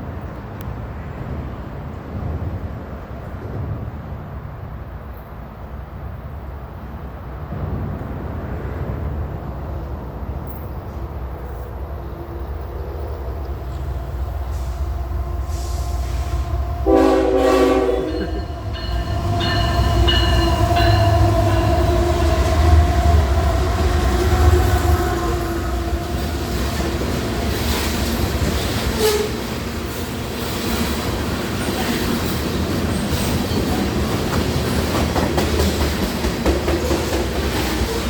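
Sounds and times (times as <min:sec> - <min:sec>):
diesel locomotive engine rumble: 0:00.0 - 0:38.0
train air horn: 0:14.5 - 0:26.3, 0:28.9 - 0:29.5.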